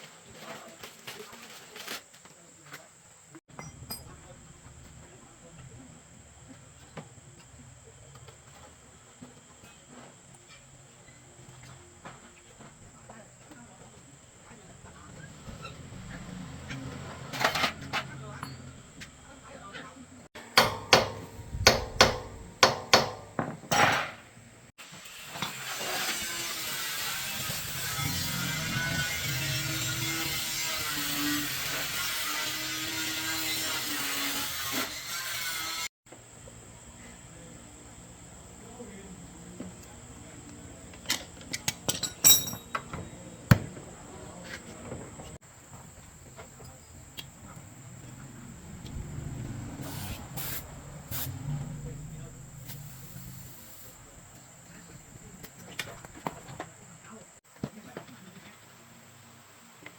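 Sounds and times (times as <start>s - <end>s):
hand hammer blows ringing: 20.4s - 23.4s
tools clicking and knocking: 20.4s - 24.1s
ringing clatter: 41.9s - 43.0s
steady hiss: 45.4s - 57.2s.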